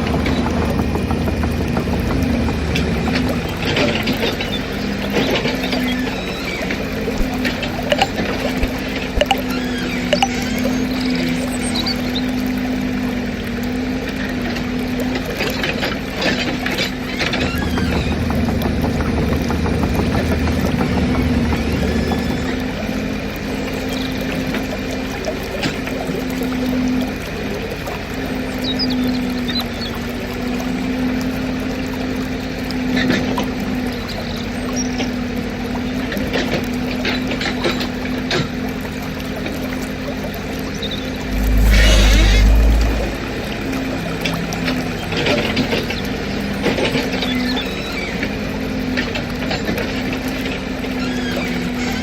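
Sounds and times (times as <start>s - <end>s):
deeper hum: 40.9s - 44.2s.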